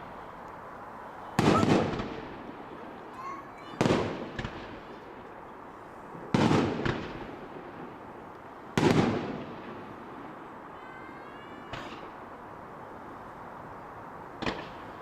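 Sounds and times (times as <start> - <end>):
fireworks exploding: 1.4 - 5.4, 6.1 - 12.3, 14.4 - 15.0.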